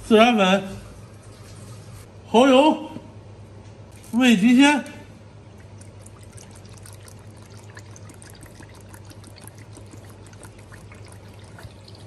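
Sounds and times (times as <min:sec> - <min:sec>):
sauce trickling into a bowl: 0:05.4 - 0:12.0.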